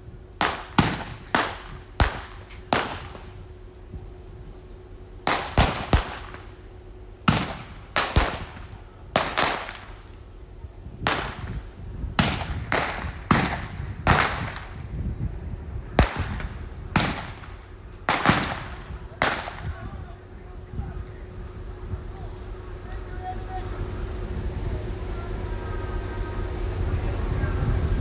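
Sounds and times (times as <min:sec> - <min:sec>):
gunshots with ringing tail: 0:00.4 - 0:03.6, 0:05.2 - 0:10.3, 0:11.0 - 0:14.8, 0:16.0 - 0:19.9.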